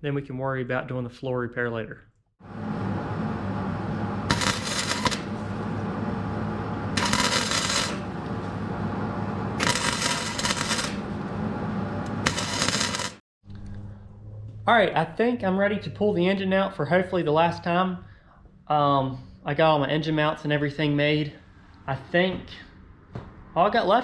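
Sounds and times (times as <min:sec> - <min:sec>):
power tool motor running: 0:04.3 - 0:05.6, 0:06.9 - 0:08.5, 0:09.6 - 0:11.3, 0:12.0 - 0:13.2
gritty rattling and scraping: 0:09.6 - 0:11.1.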